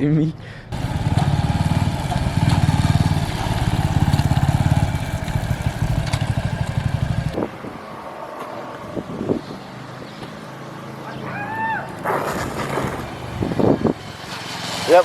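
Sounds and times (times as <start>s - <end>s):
motorcycle engine running: 0.7s - 7.4s.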